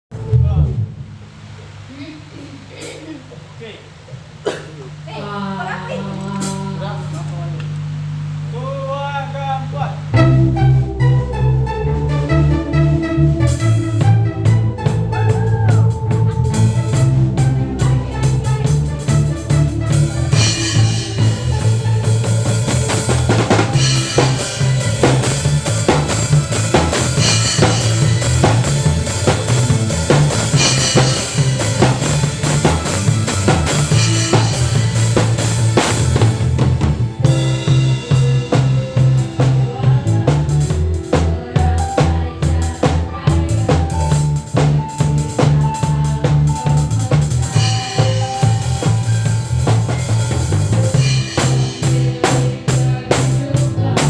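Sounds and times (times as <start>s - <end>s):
drum kit: 0.0s - 5.1s, 9.8s - 54.0s
bass: 0.0s - 54.0s
band playing instrumental: 0.1s - 5.1s, 9.9s - 54.0s
melody line: 10.1s - 40.2s.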